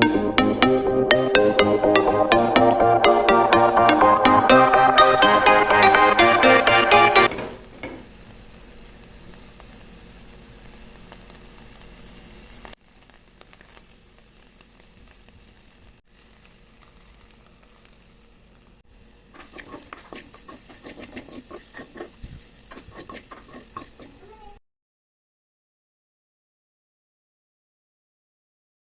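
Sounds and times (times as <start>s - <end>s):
fish sizzling in hot oil: 7.4s - 24.6s
spatula scraping in pan: 19.4s - 24.6s.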